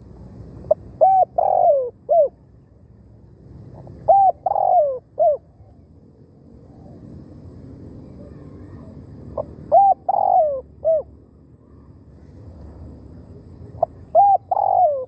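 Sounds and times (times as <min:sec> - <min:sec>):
dove cooing: 0:00.7 - 0:02.5, 0:03.7 - 0:05.6, 0:08.2 - 0:11.9, 0:13.7 - 0:15.0.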